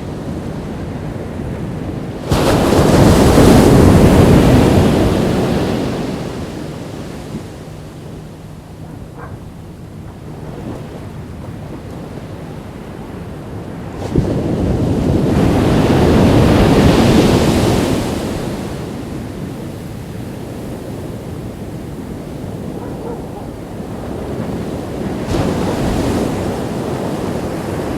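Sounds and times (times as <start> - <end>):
ocean waves washing on beach: 0.0 - 27.9.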